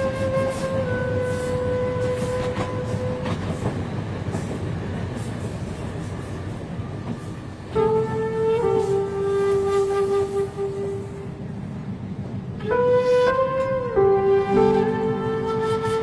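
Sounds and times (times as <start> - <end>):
train carriage rumbling: 0.0 - 16.0
long held tone: 12.6 - 16.0.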